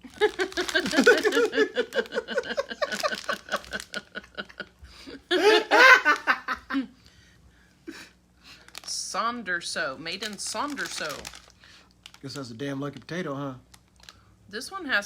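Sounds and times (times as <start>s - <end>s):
people laughing: 0.0s - 6.9s.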